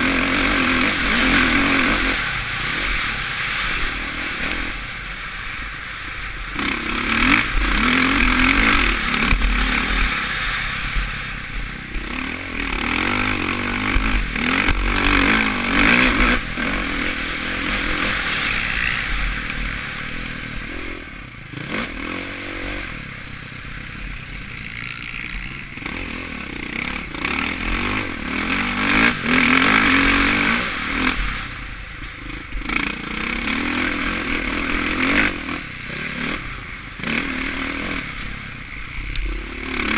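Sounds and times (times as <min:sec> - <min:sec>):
motocross engine revving: 0:00.0 - 0:39.9.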